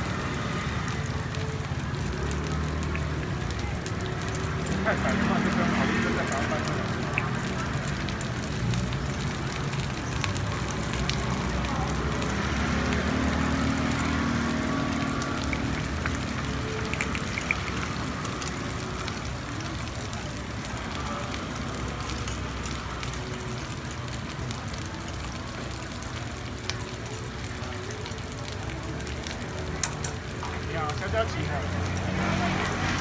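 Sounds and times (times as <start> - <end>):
batter sizzling on a griddle: 0.0 - 33.0
metal picks clicking on pan: 29.8 - 30.5.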